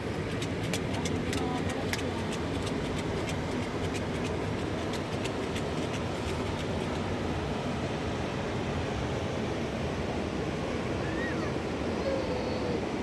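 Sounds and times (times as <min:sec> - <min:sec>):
water clicking over stones: 0:00.0 - 0:07.4.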